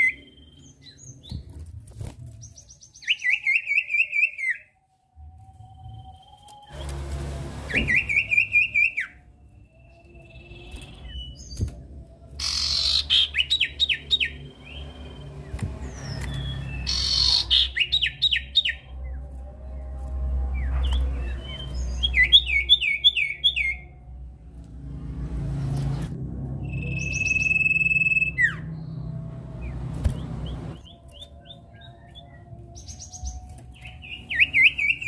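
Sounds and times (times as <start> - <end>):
bird singing whistled notes: 0.0 - 1.4, 2.4 - 4.8, 7.7 - 11.8, 12.4 - 19.2, 20.6 - 23.9, 26.6 - 35.0.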